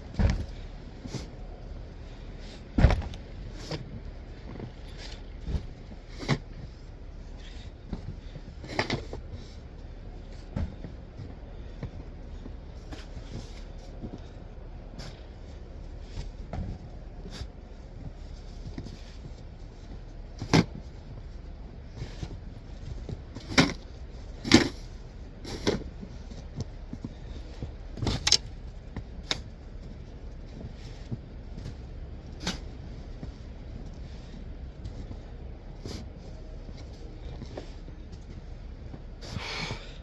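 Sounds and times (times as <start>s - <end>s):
steady low rumble: 0.0s - 40.0s.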